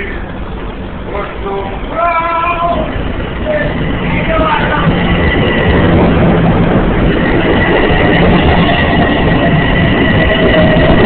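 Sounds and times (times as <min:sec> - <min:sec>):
steady high tone: 0:00.0 - 0:11.0
train rumbling: 0:00.0 - 0:11.0.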